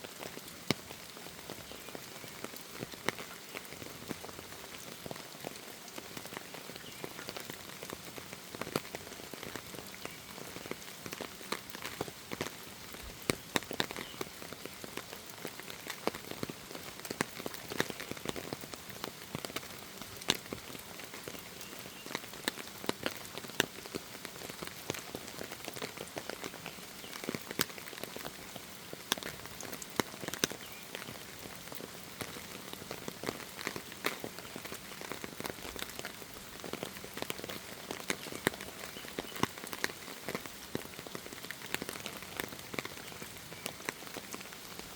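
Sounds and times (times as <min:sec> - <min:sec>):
raindrops ticking on surfaces: 0:00.0 - 0:44.9
steady hiss of rainfall: 0:00.0 - 0:44.9.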